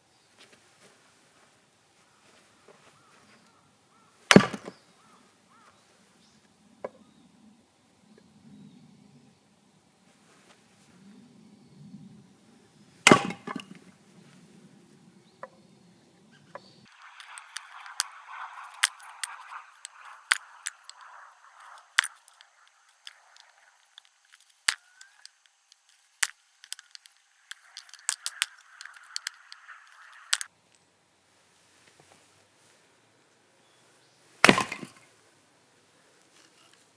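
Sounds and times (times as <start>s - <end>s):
soft rustle: 16.9s - 30.5s.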